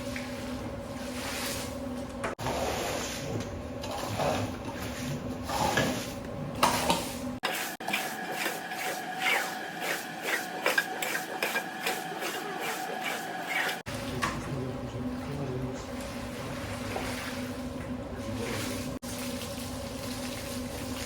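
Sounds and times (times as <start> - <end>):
steady machine hum: 0.0 - 21.0
carpet being scrubbed: 7.4 - 13.9.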